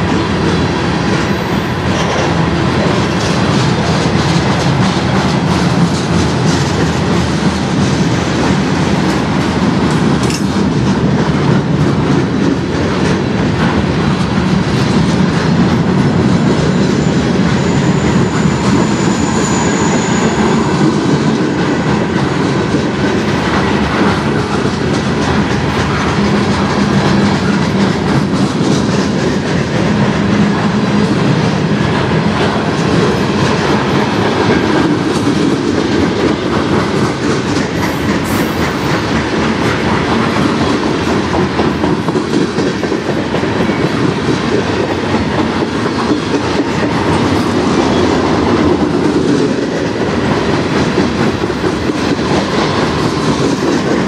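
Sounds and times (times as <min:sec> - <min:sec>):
steel wheels rumbling on rails: 0:00.0 - 0:54.0
faint high wheel squeal: 0:17.0 - 0:20.8.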